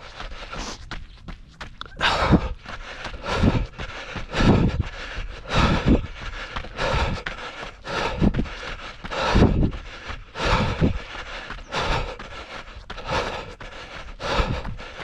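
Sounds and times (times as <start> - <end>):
wind noise on microphone: 0.0 - 7.3, 7.9 - 11.1.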